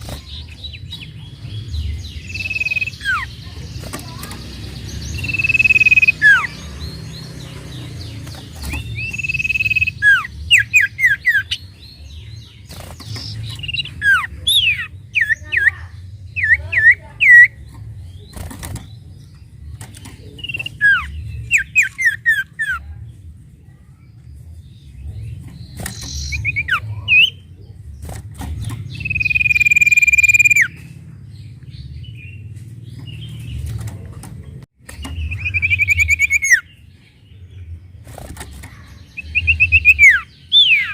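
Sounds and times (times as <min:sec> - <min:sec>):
bird whistling and chirping: 0:01.9 - 0:03.3, 0:05.1 - 0:06.6, 0:08.6 - 0:11.8, 0:13.1 - 0:17.6, 0:20.4 - 0:22.8, 0:25.8 - 0:27.4, 0:28.9 - 0:30.8, 0:35.0 - 0:36.7, 0:39.2 - 0:40.9.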